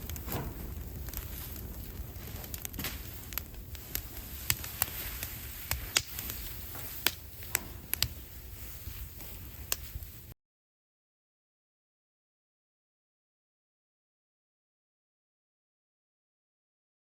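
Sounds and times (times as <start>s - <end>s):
low rumble of fire: 0.0s - 10.4s
wood fire crackling and popping: 0.0s - 10.4s.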